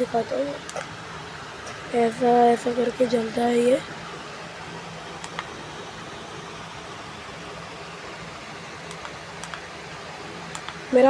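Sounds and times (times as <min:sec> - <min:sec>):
faint low hum: 0:00.0 - 0:11.0
faint clicks: 0:08.9 - 0:09.6, 0:10.5 - 0:10.8.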